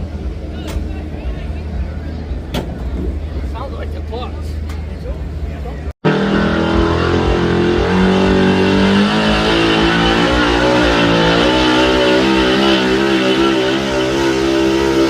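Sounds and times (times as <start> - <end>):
truck engine at high revs: 6.0 - 15.0.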